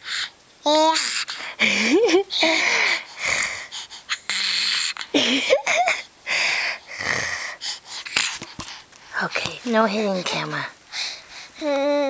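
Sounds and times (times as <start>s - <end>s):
raspy throat noises: 6.9s - 8.5s.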